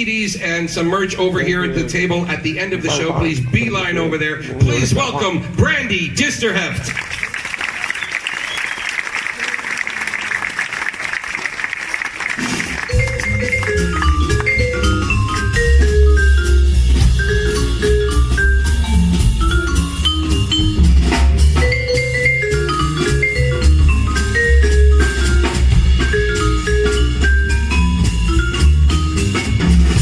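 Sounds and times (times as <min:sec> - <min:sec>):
applause: 0:06.8 - 0:14.6
double bass: 0:12.4 - 0:30.0
drum kit with cymbals: 0:12.4 - 0:30.0
marimba melody: 0:12.4 - 0:30.0.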